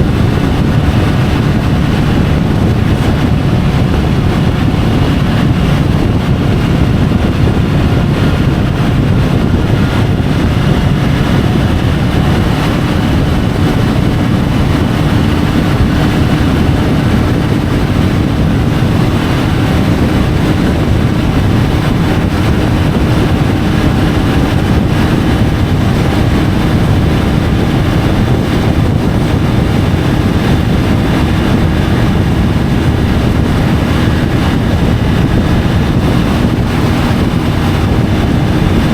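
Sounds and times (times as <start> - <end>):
motorcycle engine running: 0.0 - 38.9
road noise: 0.0 - 38.9
wind rush: 0.0 - 38.9.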